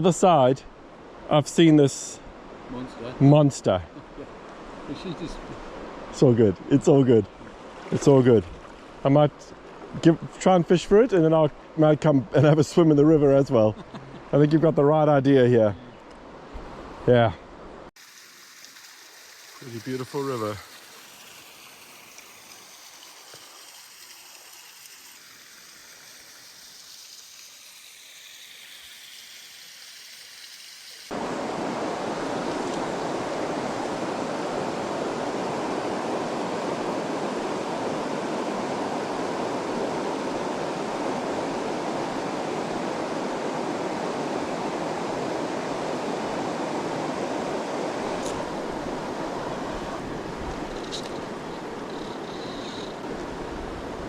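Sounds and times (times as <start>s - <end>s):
faint outdoor hiss: 0.0s - 54.0s
river water rushing over rapids: 18.1s - 54.0s.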